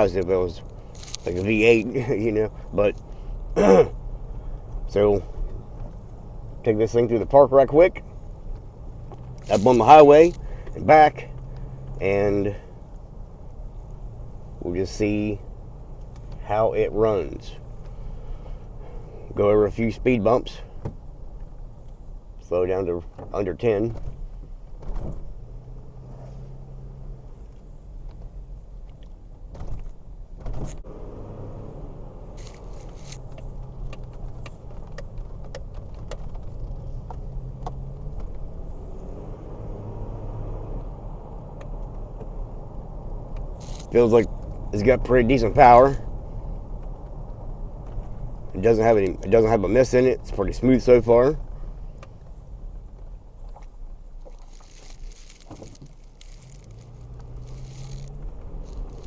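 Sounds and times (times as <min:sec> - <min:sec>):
pickup engine and road hum: 0:00.0 - 0:59.0
light clicks and rattles: 0:32.4 - 0:38.5.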